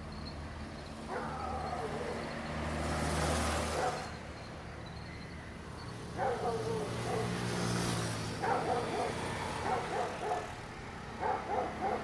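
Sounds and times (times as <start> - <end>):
dog barking: 1.1 - 2.2, 3.8 - 4.0, 6.2 - 7.4, 8.4 - 10.6, 11.2 - 12.0.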